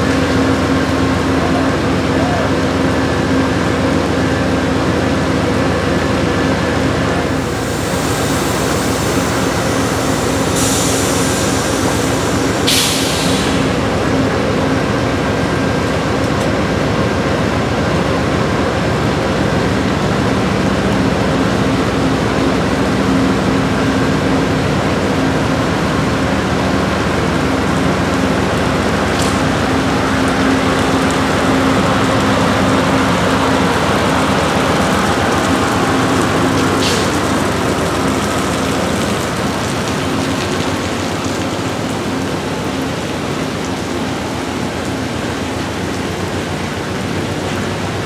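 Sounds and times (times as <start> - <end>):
train wheels rumbling on rail: 0.0 - 48.0
air hisses: 7.4 - 13.8.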